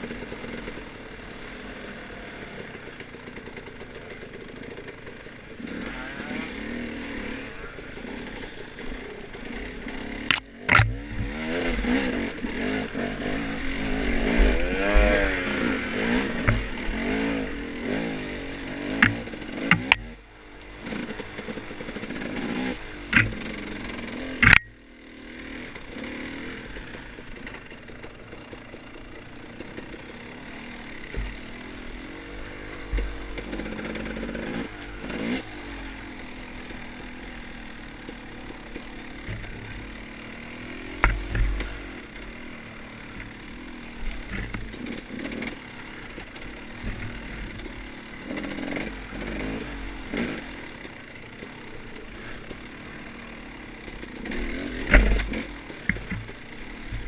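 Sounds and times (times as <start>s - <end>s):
motorcycle engine revving: 0.0s - 57.0s
sharp knocks and clatters: 10.2s - 12.0s, 16.3s - 17.1s, 18.9s - 20.2s, 23.1s - 23.6s, 40.9s - 41.8s, 44.0s - 45.6s, 53.9s - 57.0s.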